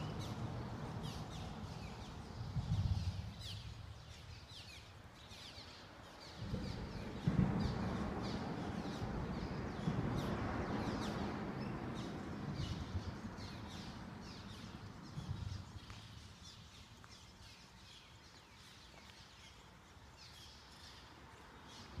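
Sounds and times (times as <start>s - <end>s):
birds chirping: 0.0s - 22.0s
low rumble: 6.4s - 16.1s.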